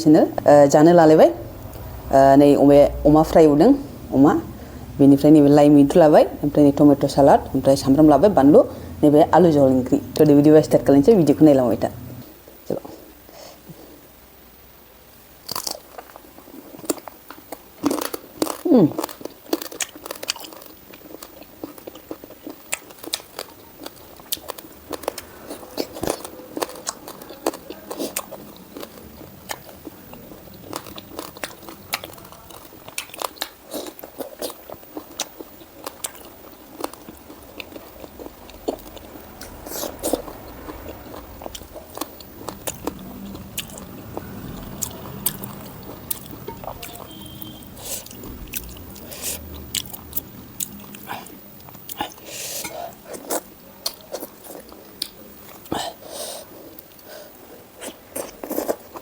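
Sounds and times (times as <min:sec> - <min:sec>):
person chewing food: 0:15.4 - 0:59.0.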